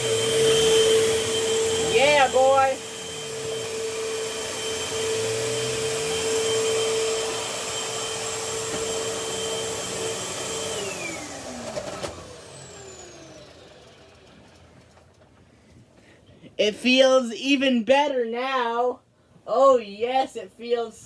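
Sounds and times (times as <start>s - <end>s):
vacuum cleaner motor whining: 0.0s - 15.0s.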